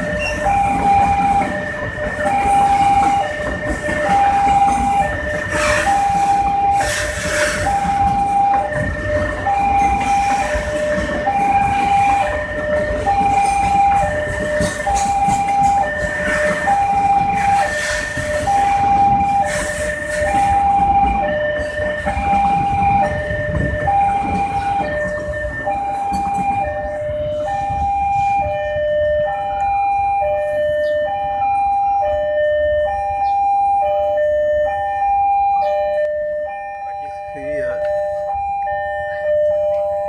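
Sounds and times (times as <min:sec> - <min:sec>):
freight wagons clattering on rails: 0:00.0 - 0:27.1
two-tone warning alarm: 0:00.0 - 0:40.0.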